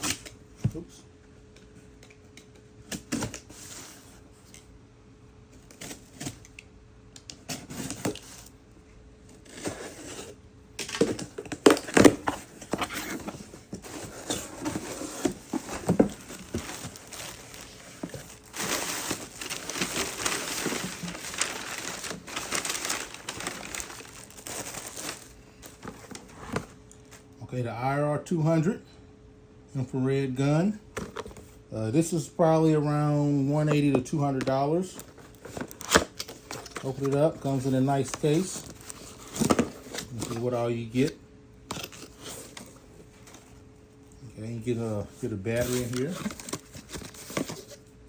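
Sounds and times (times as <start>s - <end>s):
packaging crinkling and tearing: 9.4s - 27.2s, 34.9s - 40.6s, 41.7s - 43.4s, 45.6s - 47.8s.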